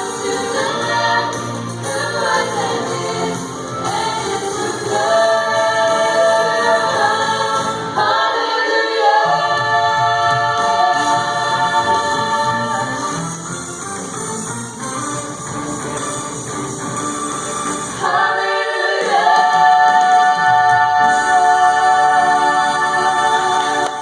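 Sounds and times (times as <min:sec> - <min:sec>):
choir singing: 0:00.0 - 0:13.5, 0:17.5 - 0:24.0.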